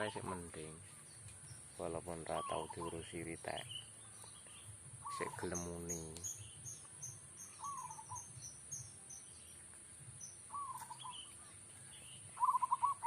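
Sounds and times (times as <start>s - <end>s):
dove cooing: 2.3s - 3.1s, 5.0s - 5.6s, 7.6s - 8.2s, 10.5s - 11.3s, 12.4s - 13.0s.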